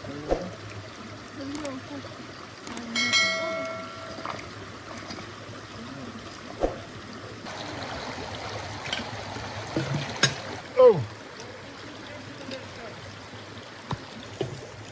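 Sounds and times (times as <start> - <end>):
river flowing: 0.0 - 14.9
metal object struck and ringing: 3.0 - 4.3.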